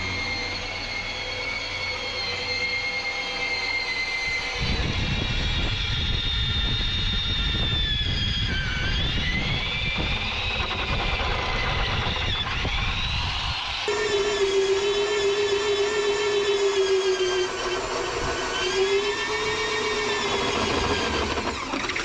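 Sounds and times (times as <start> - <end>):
angle grinder grinding steel: 9.0 - 22.0.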